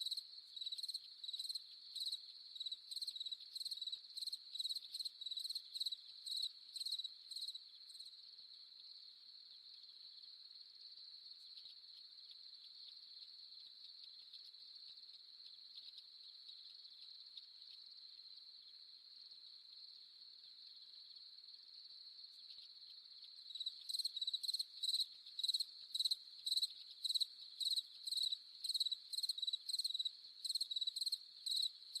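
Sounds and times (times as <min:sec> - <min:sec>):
close cricket chirping loudly: 0:00.0 - 0:08.1, 0:16.6 - 0:32.0
crickets trilling: 0:22.3 - 0:32.0.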